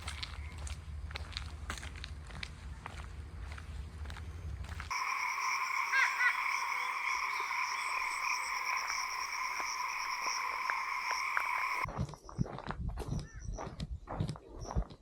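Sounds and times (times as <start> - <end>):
chorus of animals trilling: 4.9 - 11.9.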